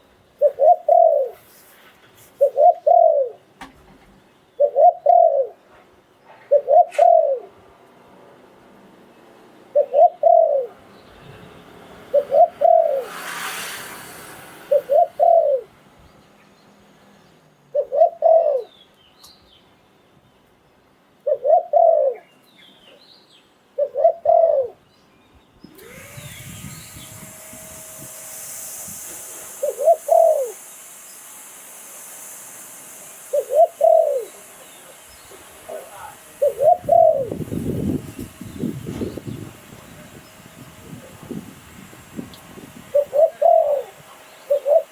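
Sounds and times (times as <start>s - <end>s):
dove cooing: 0.4s - 1.4s, 2.4s - 3.4s, 4.6s - 5.6s, 6.4s - 7.6s, 9.7s - 10.8s, 12.1s - 13.1s, 14.6s - 15.7s, 17.7s - 18.7s, 21.2s - 22.2s, 23.8s - 24.8s, 29.6s - 30.6s, 33.3s - 37.5s, 42.9s - 44.9s
steady high hiss: 10.5s - 21.2s, 25.7s - 44.9s.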